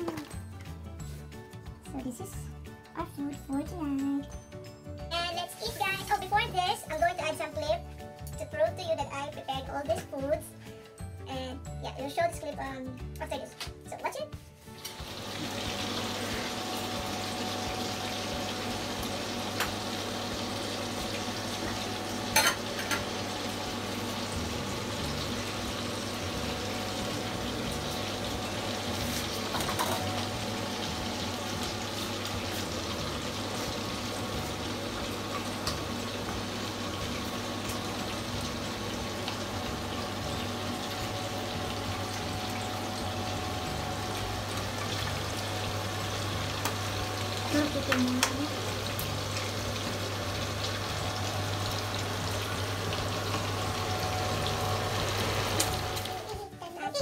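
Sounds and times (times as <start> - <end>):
meat sizzling in oil: 14.6 - 56.4.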